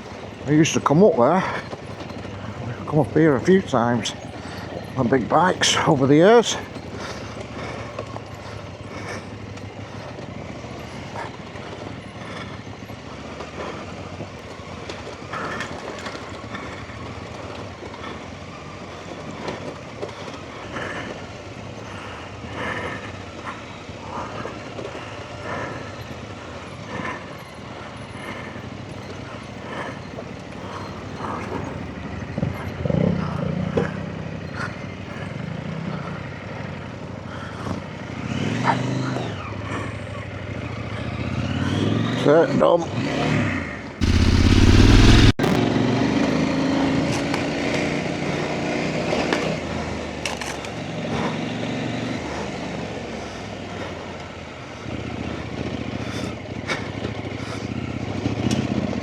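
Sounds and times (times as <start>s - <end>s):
bike knocking and rattling: 0.0s - 38.0s, 50.2s - 51.3s
motorcycle engine at low revs: 0.0s - 59.0s.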